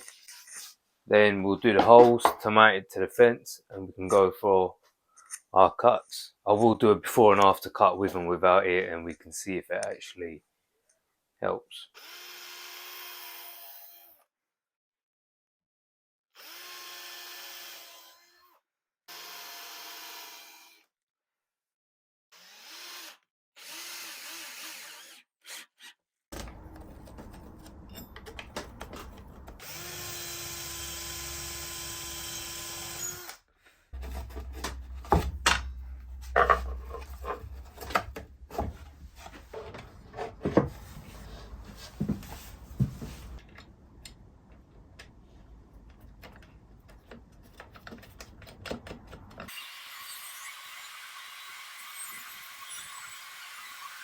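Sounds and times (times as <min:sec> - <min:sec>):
power drill drilling into wood: 0:12.0 - 0:14.2, 0:16.4 - 0:18.4, 0:19.1 - 0:20.8, 0:22.4 - 0:25.9, 0:29.6 - 0:33.4, 0:49.5 - 0:54.0
sharp knocks and clatter: 0:34.0 - 0:41.0.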